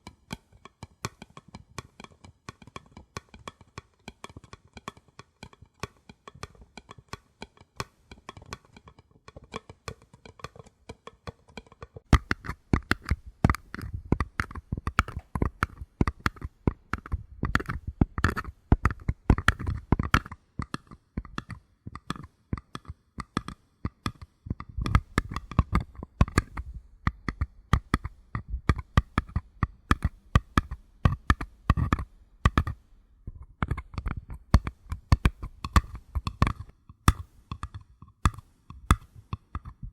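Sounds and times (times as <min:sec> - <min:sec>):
fingers tapping paper cups: 0:00.0 - 0:39.9.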